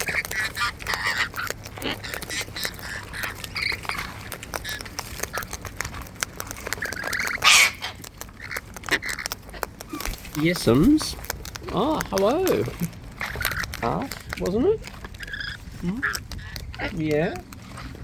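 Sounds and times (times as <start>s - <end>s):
harsh squawk: 0.0s - 5.6s, 6.4s - 10.8s, 15.1s - 17.4s
parrots chattering and warbling: 0.0s - 18.0s
small clicks: 0.0s - 18.0s.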